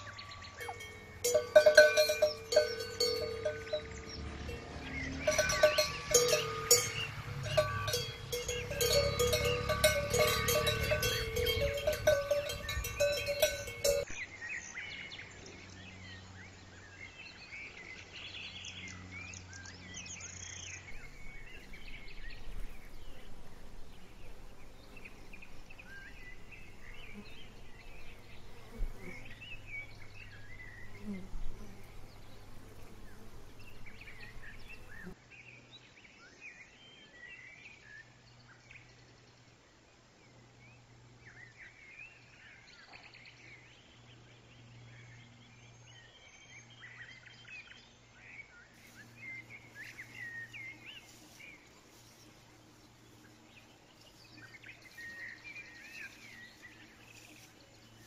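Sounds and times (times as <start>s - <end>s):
high chirps: 0.4s - 14.2s
cowbell clanking: 0.5s - 14.2s.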